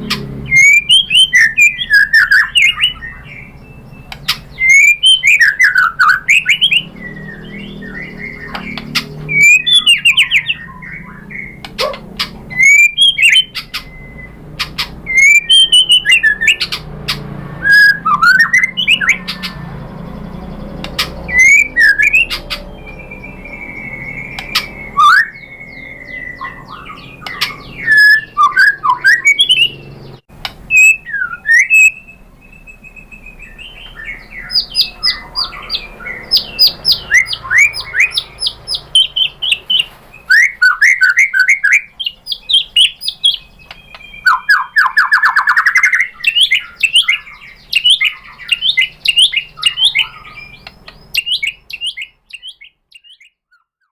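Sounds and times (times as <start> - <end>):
bird singing varied whistles: 0.0 - 19.7, 20.4 - 53.9.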